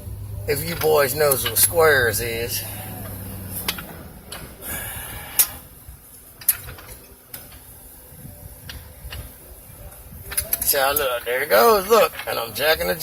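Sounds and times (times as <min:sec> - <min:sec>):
sharp metal clicks and knocks: 0:03.0 - 0:04.6.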